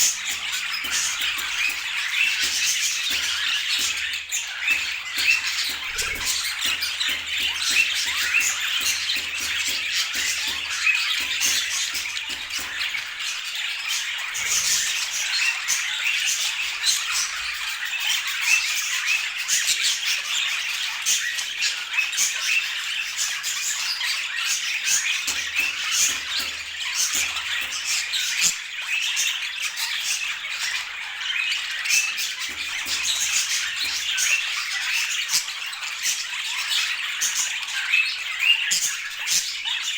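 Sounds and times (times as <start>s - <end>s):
budgerigars chattering: 0.0s - 17.4s, 24.6s - 37.4s.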